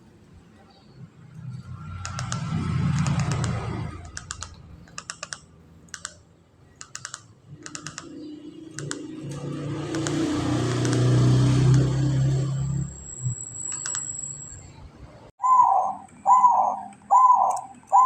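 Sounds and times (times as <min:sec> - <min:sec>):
dove clicking notes: 0:01.8 - 0:12.1, 0:15.4 - 0:18.0.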